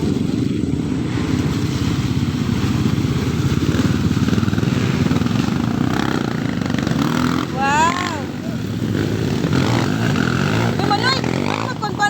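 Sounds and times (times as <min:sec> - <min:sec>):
motorcycle engines running: 0:00.0 - 0:12.0.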